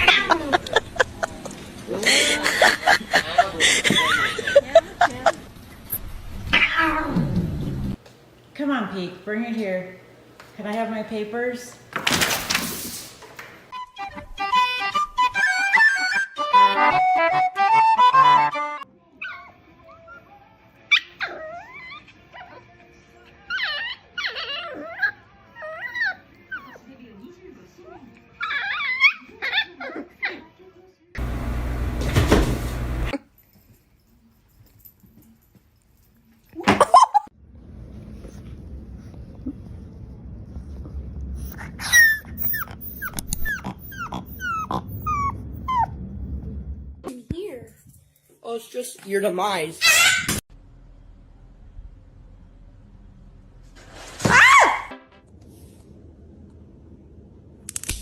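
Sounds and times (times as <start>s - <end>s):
dog whining and yelping: 15.2s - 16.4s, 20.9s - 22.7s, 23.5s - 26.9s, 28.0s - 30.5s, 41.4s - 46.0s, 49.8s - 50.4s
dog giving short high cries: 41.5s - 45.9s, 49.8s - 50.4s.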